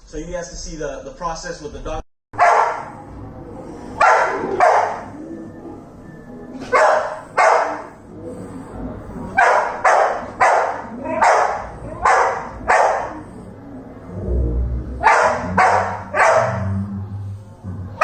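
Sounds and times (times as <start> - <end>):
dog barking: 2.4 - 3.0, 3.9 - 5.2, 6.6 - 8.6, 9.2 - 13.5, 15.0 - 16.9.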